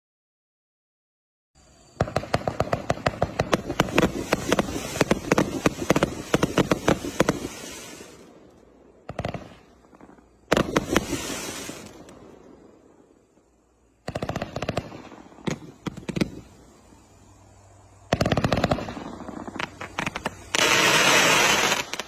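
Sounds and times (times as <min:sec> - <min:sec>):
fireworks crackling hiss: 0:01.6 - 0:22.0
fireworks shots firing: 0:01.9 - 0:08.4, 0:09.0 - 0:12.8, 0:14.0 - 0:16.7, 0:18.0 - 0:22.0.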